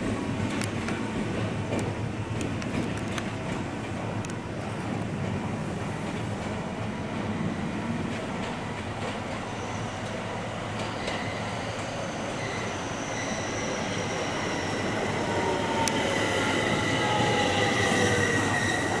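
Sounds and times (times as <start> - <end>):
train rumble: 0.0 - 19.0
train wheels squealing: 9.0 - 19.0.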